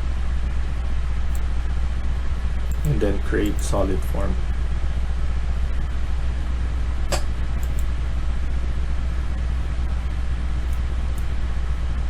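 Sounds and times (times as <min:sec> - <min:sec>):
low background hum: 0:00.0 - 0:12.0
sharp click: 0:02.7 - 0:03.8, 0:07.1 - 0:08.0, 0:10.6 - 0:11.4.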